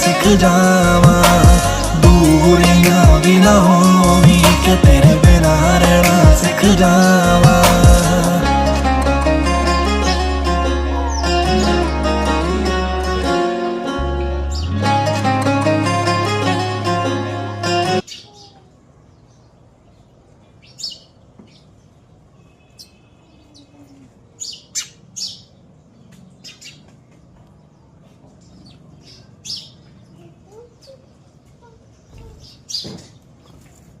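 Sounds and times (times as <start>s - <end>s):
plucked string music: 0.0s - 18.0s
small birds chirping: 18.0s - 34.0s.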